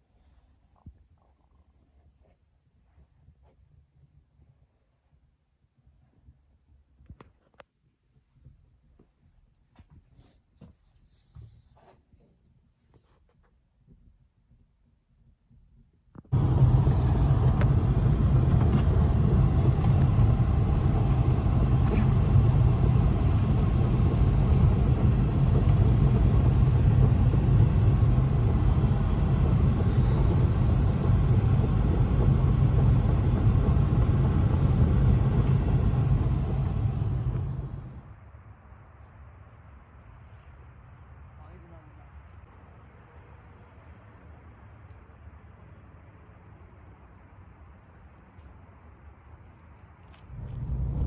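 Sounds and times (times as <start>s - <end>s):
strong wind buffeting microphone: 16.3s - 38.1s, 50.2s - 51.0s.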